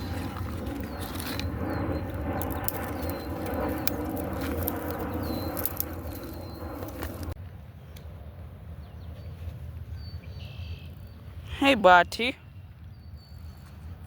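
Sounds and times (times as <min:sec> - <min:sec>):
steady low rumble: 0:00.0 - 0:11.6
bird chirping: 0:05.1 - 0:07.2, 0:08.8 - 0:13.7.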